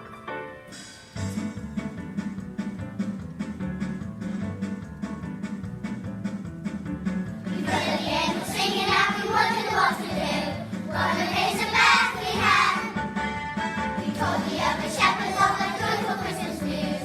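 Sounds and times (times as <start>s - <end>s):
instrumental backing music: 0.0s - 17.0s
children singing together: 7.5s - 13.0s, 14.0s - 17.0s.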